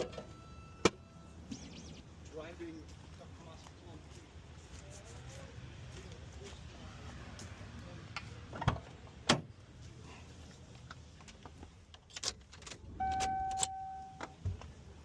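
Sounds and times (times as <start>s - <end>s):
keys clinking: 12.3s - 14.2s
steady electronic beep: 13.0s - 14.2s.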